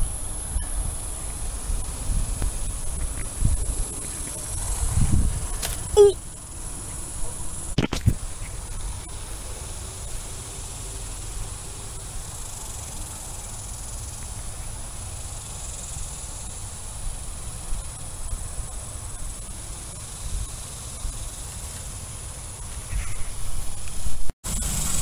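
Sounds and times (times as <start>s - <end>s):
wind rumble on microphone: 0.0s - 9.2s
high-pitched insect drone: 0.0s - 25.0s.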